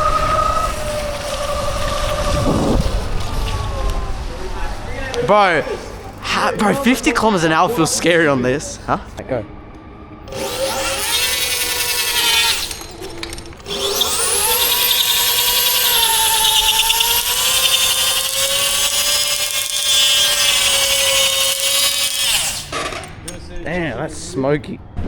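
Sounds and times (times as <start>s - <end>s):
electric motor whining: 0.0s - 4.0s, 10.2s - 23.2s
tyre spinning and squealing: 0.0s - 5.8s, 12.2s - 21.3s.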